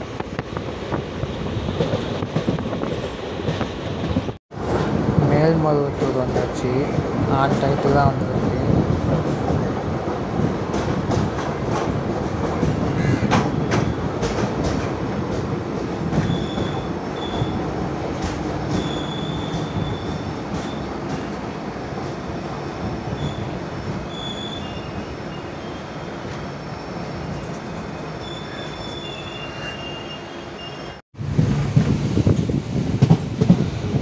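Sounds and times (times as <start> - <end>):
train rumbling on rails: 0.0 - 34.0
high wheel squeals: 16.2 - 17.6, 18.7 - 20.9, 23.1 - 31.0.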